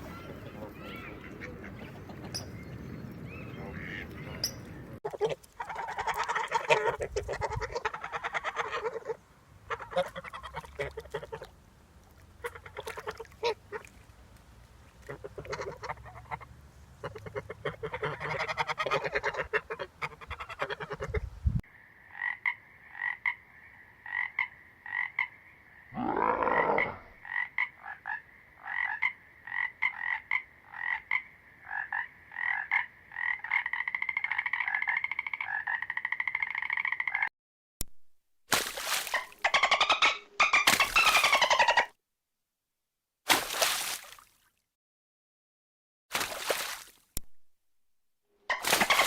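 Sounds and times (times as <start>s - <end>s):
frogs croaking: 0.0s - 5.0s, 21.7s - 37.3s
geese honking: 0.0s - 6.9s.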